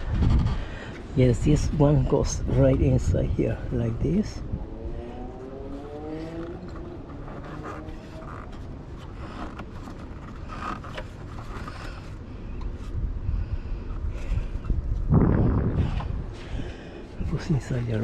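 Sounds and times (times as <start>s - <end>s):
steady low rumble: 0.0s - 18.0s
rising hum: 3.2s - 9.2s.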